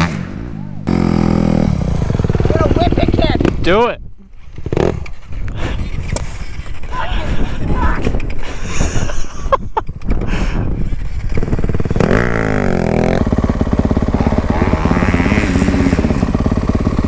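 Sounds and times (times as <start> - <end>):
dirt bike engine revving: 0.0 - 3.8, 4.5 - 5.7, 11.0 - 17.0.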